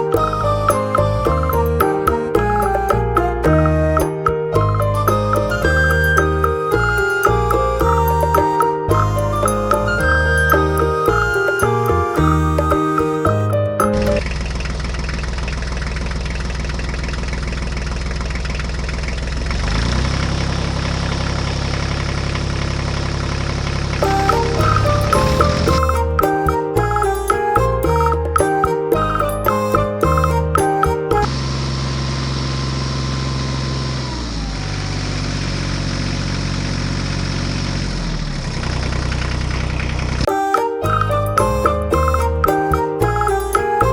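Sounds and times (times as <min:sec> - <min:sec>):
diesel tractor engine idling: 0:14.2 - 0:24.0.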